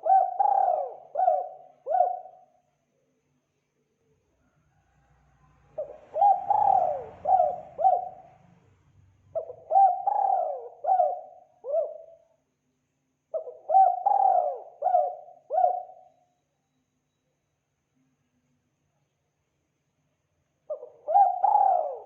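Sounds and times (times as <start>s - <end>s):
dove cooing: 0.0s - 2.5s, 5.7s - 8.4s, 9.3s - 12.2s, 13.3s - 16.1s, 20.7s - 22.0s.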